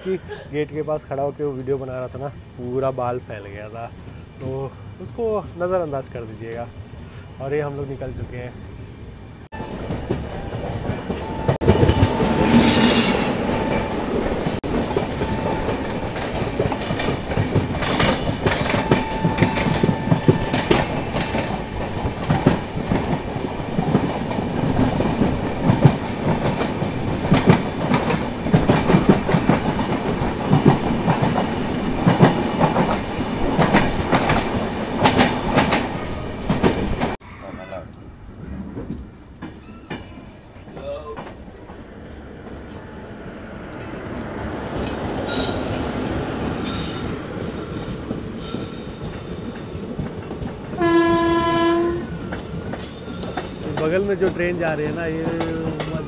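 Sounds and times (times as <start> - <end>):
train rumbling on track: 0.0 - 37.2, 38.0 - 56.0
high-pitched wheel squeal: 11.2 - 14.0, 45.3 - 46.1
wheels clicking over rail joints: 13.4 - 37.2, 46.4 - 56.0.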